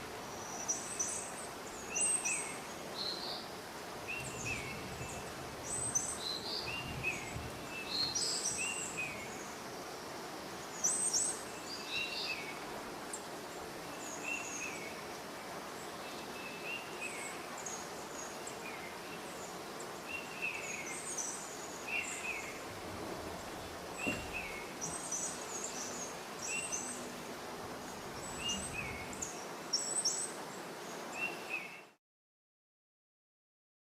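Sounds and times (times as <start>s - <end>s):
rain on leaves: 0.0s - 15.8s, 19.8s - 30.2s
songbirds chirping and whistling: 0.4s - 9.5s, 19.8s - 27.1s, 27.8s - 30.3s.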